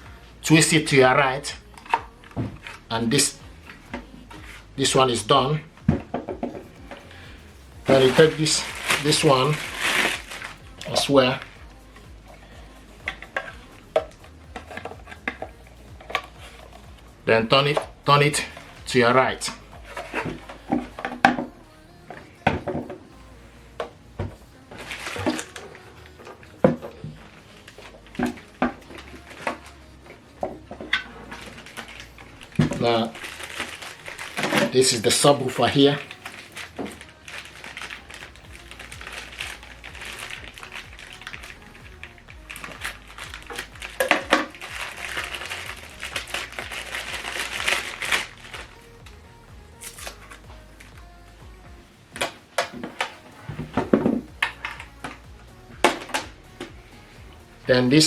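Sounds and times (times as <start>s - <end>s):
packaging crinkling: 6.9s - 11.9s, 30.6s - 49.0s
plastic parts knocking and clicking: 30.4s - 41.9s, 42.5s - 48.7s.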